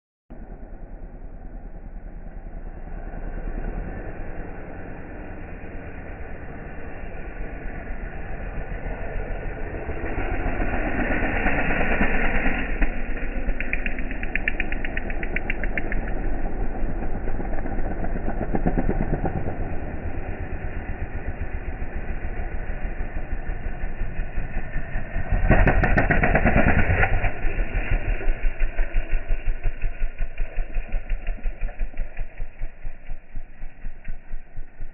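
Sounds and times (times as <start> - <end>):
slowed dirt bike engine throbbing: 0.3 - 34.9.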